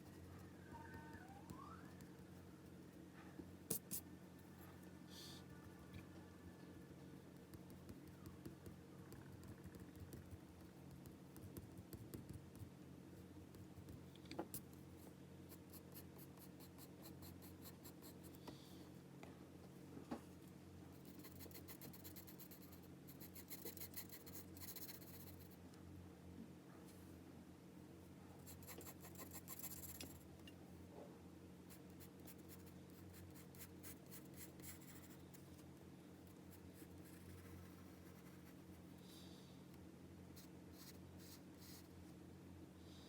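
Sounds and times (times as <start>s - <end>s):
steady low hum: 0.0s - 43.0s
pencil scratching on paper: 21.1s - 25.5s, 28.5s - 30.2s, 31.7s - 35.2s.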